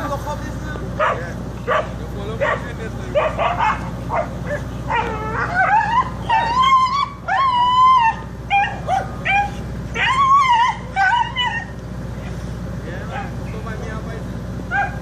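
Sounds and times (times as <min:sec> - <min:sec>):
steady low hum: 0:00.0 - 0:15.0
dog yipping: 0:01.0 - 0:11.7, 0:13.1 - 0:13.4, 0:14.7 - 0:15.0
dog howling and whining: 0:03.2 - 0:11.8, 0:14.7 - 0:15.0.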